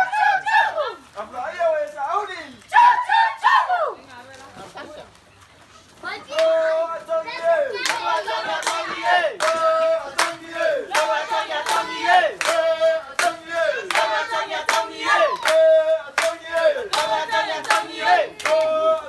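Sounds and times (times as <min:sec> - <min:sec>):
group chanting: 0:06.3 - 0:19.0
sharp claps: 0:07.8 - 0:19.0.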